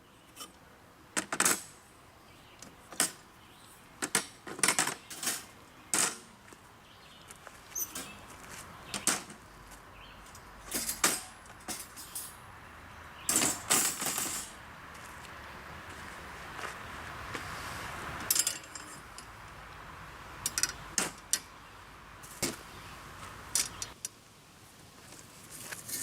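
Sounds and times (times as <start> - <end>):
camping gear clattering: 4.0 - 6.4, 7.7 - 9.5, 10.6 - 12.4, 13.2 - 14.6, 18.2 - 19.3.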